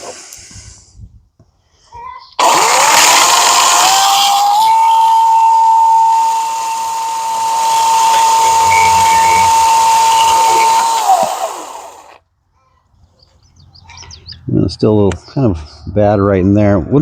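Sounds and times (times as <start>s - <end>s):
chainsaw cutting wood: 2.4s - 12.2s.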